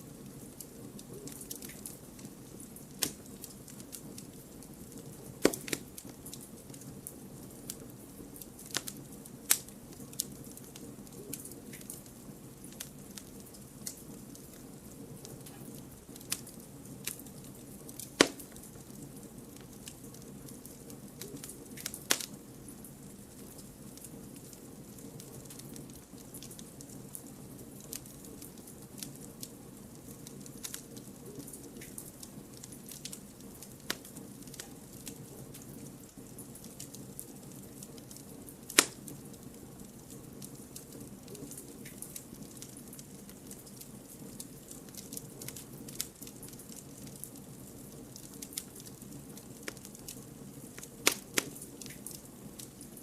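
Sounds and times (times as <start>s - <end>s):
rush of flames: 0.0s - 20.8s, 28.9s - 53.0s
small fire crackles: 0.0s - 53.0s
sharp loud fire pops: 5.4s - 5.8s, 18.2s - 18.6s, 38.7s - 39.0s, 51.0s - 51.5s.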